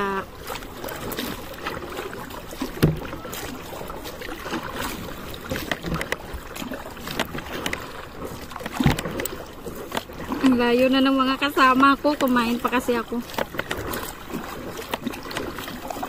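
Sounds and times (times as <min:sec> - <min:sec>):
water sloshing around kayak: 0:00.0 - 0:16.0
knocks against boat: 0:02.6 - 0:03.6, 0:04.4 - 0:10.6, 0:12.0 - 0:16.0.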